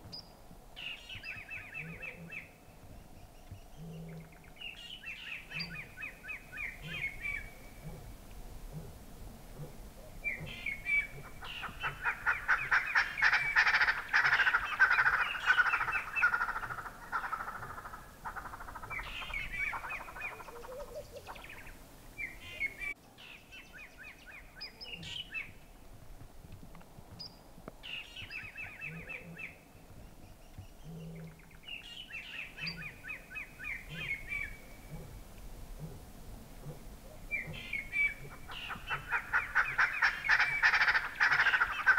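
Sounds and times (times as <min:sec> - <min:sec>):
birds rattling calls: 0:09.5 - 0:22.9, 0:36.6 - 0:41.9.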